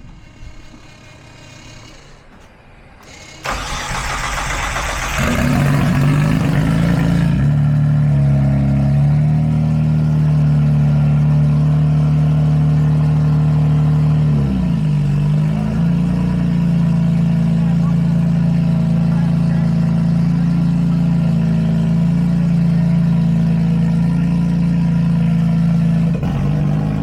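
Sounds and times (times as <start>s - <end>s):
car engine idling: 0.0s - 27.0s
car engine starter cranking: 3.0s - 6.0s.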